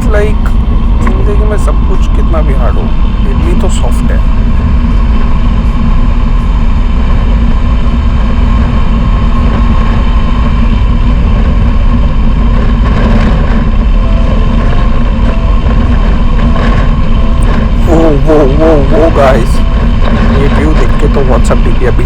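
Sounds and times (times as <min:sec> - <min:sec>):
motorcycle engine running: 0:00.0 - 0:22.0
wind rush on microphone: 0:00.0 - 0:22.0.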